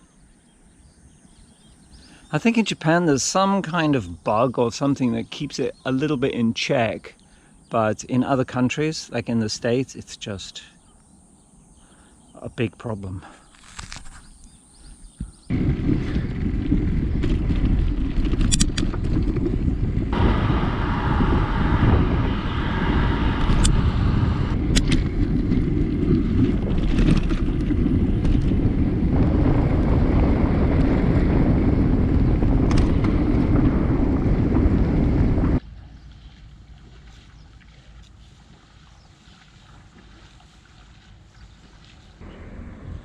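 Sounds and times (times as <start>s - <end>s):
bicycle tyres on gravel: 13.4s - 14.9s, 15.5s - 24.0s, 24.6s - 42.8s
wind buffeting microphone: 13.7s - 43.0s.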